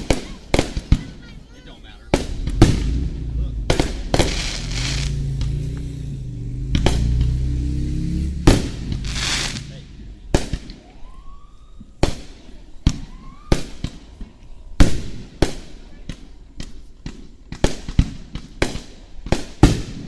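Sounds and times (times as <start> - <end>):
fireworks bursting with bangs: 0.0 - 6.2, 7.9 - 11.2
faint firework whistle: 0.0 - 14.4.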